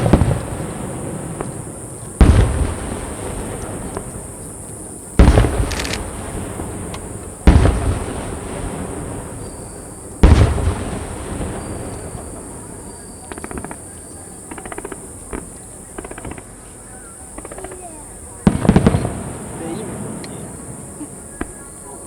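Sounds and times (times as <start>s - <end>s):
firework shells booming: 0.0s - 13.9s, 17.3s - 20.8s
firework crackle: 0.0s - 16.6s, 17.3s - 21.7s
rolling echo: 0.0s - 22.0s.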